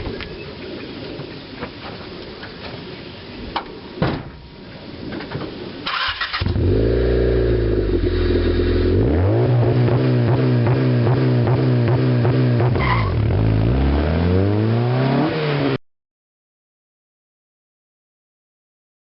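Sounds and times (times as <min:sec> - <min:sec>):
car engine starting and revving: 0:05.9 - 0:15.8.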